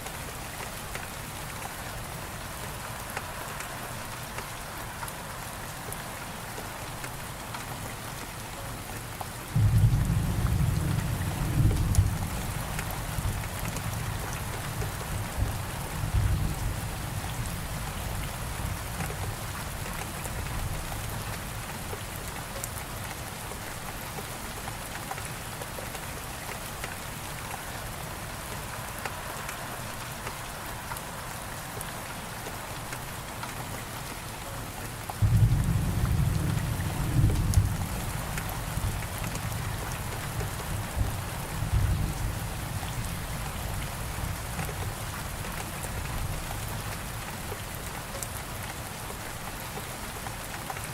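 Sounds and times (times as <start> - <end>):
steady rain hiss: 0.0 - 50.9
rolling thunder: 9.6 - 13.4.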